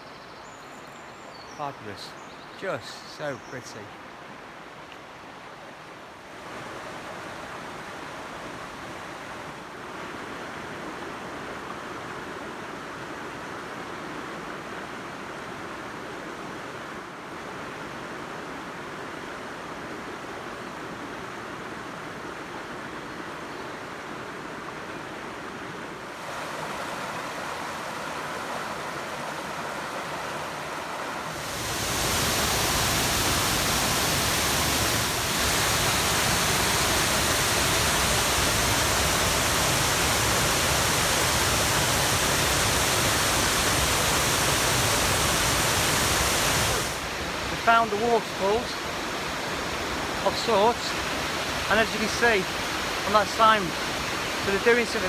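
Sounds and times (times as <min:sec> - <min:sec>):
waterfall rushing: 0:26.1 - 0:55.0.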